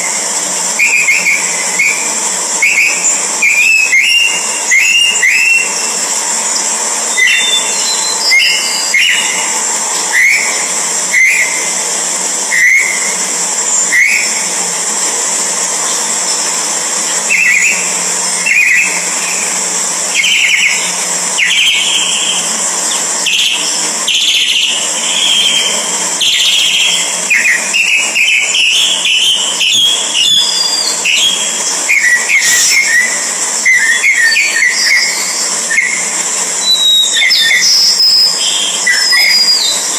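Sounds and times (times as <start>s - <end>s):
birds chirping: 0.3s - 6.1s, 15.6s - 39.9s.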